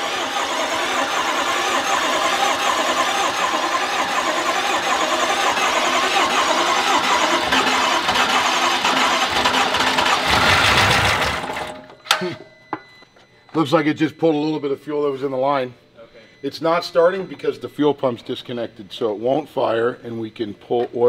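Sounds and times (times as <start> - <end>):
starter motor cranking engine: 0.0 - 12.2.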